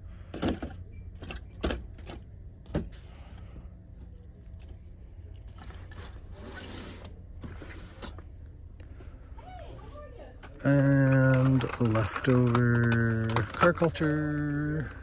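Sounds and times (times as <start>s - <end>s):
blister packs rustling: 10.6s - 15.0s
plastic toy packages clacking: 10.6s - 15.0s.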